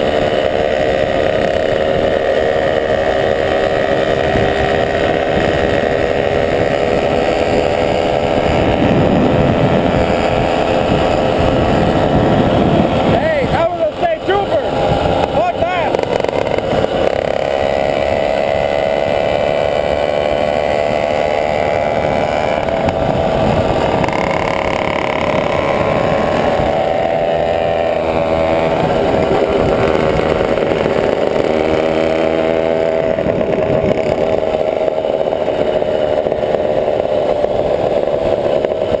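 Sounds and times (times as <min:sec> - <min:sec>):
motorbike engine running: 0:00.0 - 0:39.0.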